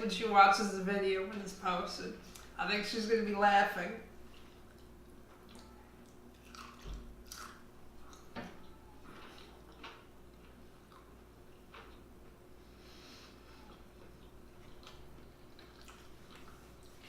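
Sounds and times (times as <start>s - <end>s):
person chewing food: 4.2s - 12.7s, 13.3s - 17.0s.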